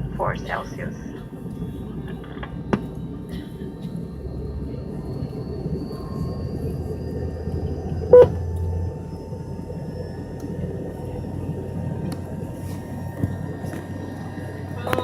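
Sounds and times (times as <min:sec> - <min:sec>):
airliner cabin drone: 0:00.0 - 0:15.0.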